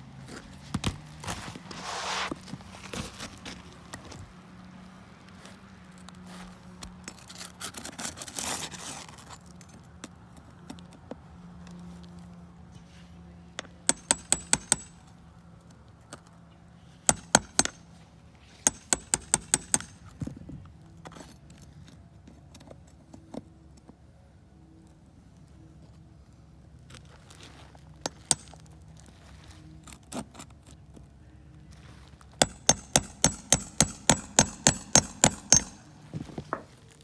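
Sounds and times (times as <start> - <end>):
scraping on roof: 0.5 - 4.2, 35.4 - 37.0
hammer nailing shingles: 13.6 - 15.0, 17.1 - 17.8, 18.5 - 20.1, 28.1 - 28.6, 32.4 - 36.9.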